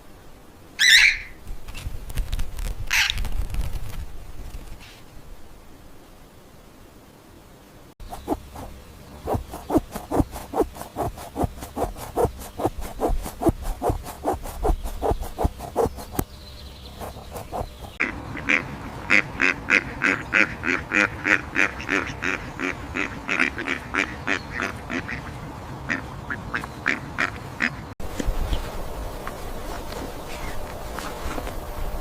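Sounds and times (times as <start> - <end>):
farm fowl calling: 0.8 - 1.4, 18.0 - 27.8
rhythmic scraping or stepping: 8.0 - 16.3, 16.9 - 18.0.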